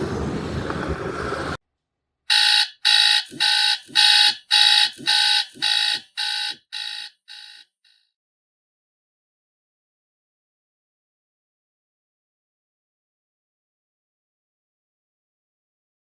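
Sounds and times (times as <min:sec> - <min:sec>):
electronic alarm beeping: 0:02.3 - 0:07.8.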